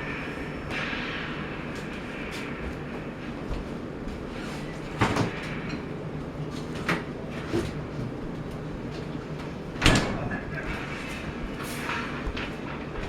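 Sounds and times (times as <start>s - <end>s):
steady rumbling: 3.3s - 13.0s.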